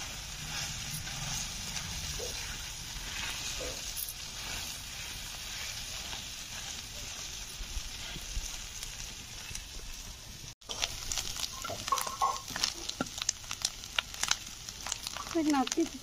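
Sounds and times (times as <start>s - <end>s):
metal spatula scraping a pan: 0.0s - 8.6s
fish roe sizzling in a pan: 0.0s - 16.0s.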